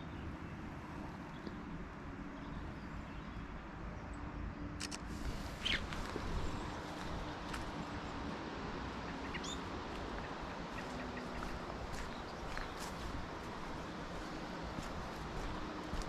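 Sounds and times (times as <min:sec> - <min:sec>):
sharp clicks: 0:04.8 - 0:05.1.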